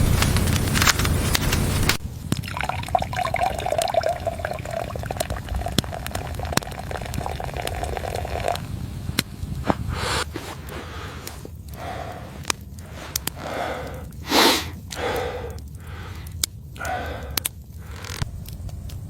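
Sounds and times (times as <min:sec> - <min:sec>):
water pouring into vessel: 0:02.4 - 0:08.7.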